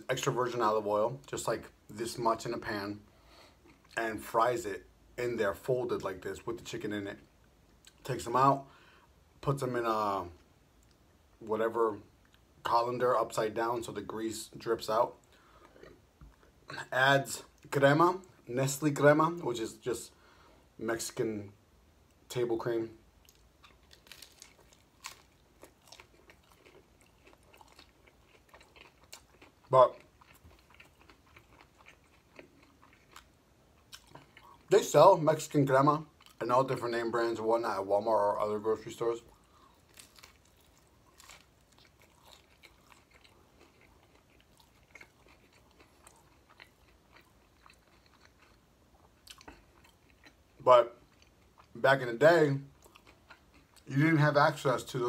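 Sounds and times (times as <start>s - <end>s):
chewing crispy taco: 3.5s - 4.0s, 14.6s - 18.4s, 23.2s - 54.0s.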